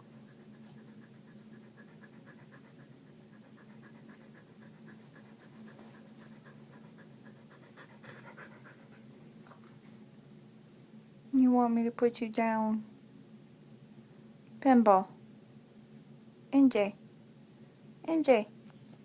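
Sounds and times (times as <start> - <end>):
dog panting rapidly: 0.0 - 9.2.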